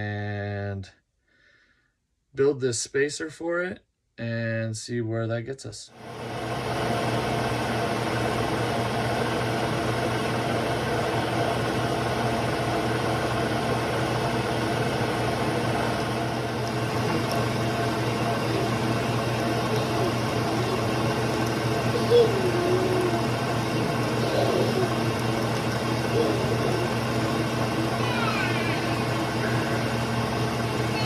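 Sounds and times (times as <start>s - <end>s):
milling machine humming: 6.0s - 31.0s.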